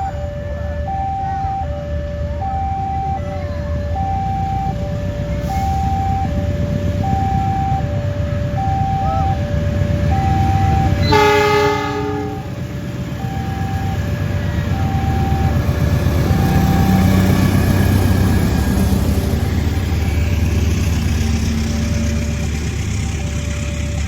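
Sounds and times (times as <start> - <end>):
train rumble: 0.0 - 24.0
two-tone crossing alarm: 0.0 - 24.0
locomotive horn blast: 4.5 - 15.6.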